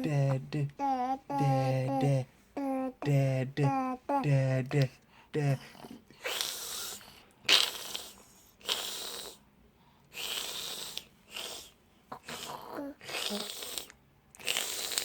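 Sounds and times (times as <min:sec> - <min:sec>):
baby making breathy vocal sounds: 0:00.0 - 0:04.4, 0:10.1 - 0:15.0.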